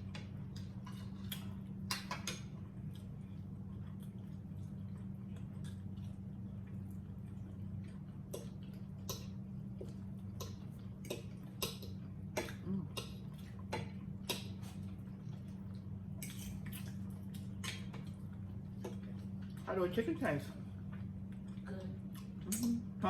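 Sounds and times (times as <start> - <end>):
low electrical hum: 0.0 - 23.0
eating clicks and smacks: 0.2 - 19.7.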